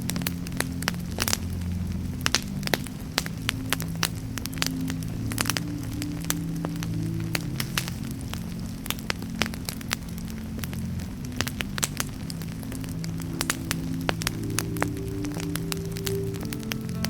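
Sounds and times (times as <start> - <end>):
campfire crackling: 0.0 - 17.0
low drone of held tones: 0.0 - 17.0.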